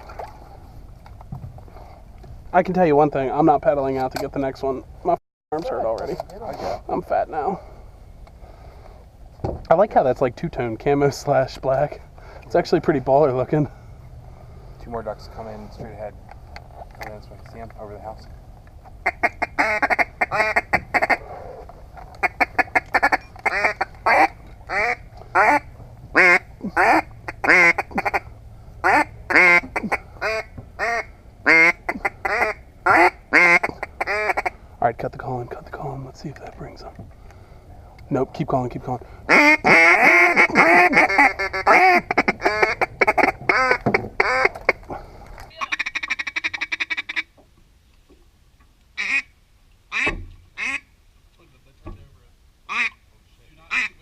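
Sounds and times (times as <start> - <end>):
duck call chattering: 19.0 - 21.2, 22.2 - 34.6, 39.3 - 44.8, 45.5 - 47.3, 49.0 - 49.3, 49.9 - 50.9, 52.7 - 53.0, 53.7 - 54.0
duck call quacks: 19.0 - 21.2, 22.2 - 34.6, 39.3 - 44.8, 45.5 - 47.3, 49.0 - 49.3, 49.9 - 50.9, 52.7 - 53.0, 53.7 - 54.0.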